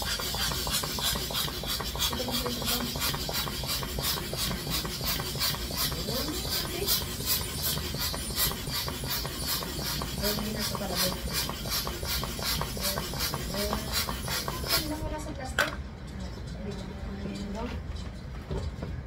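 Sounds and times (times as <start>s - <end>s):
balloon pump hissing: 0.0s - 15.2s.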